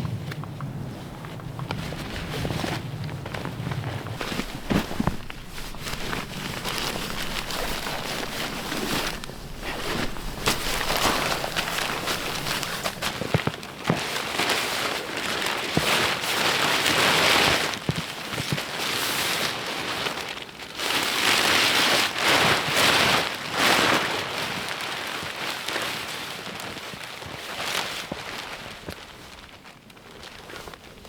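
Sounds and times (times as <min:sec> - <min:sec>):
tarp rustling and crinkling: 0:00.8 - 0:17.8
small knocks: 0:04.2 - 0:13.3.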